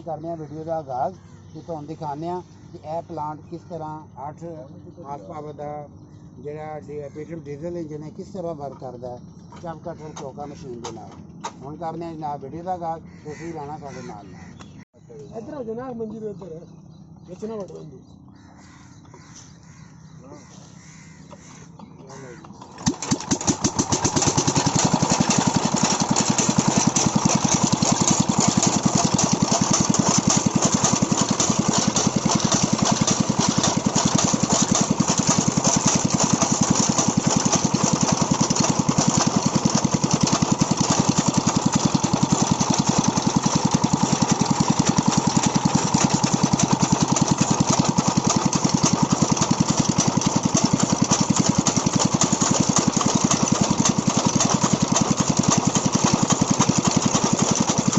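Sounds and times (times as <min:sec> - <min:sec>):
diesel engine running: 0:16.3 - 0:57.9.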